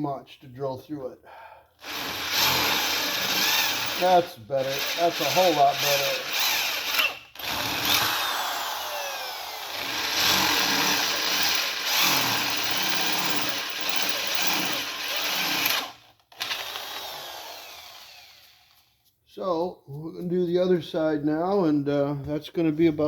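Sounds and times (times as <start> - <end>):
electric drill boring metal: 1.8 - 18.8.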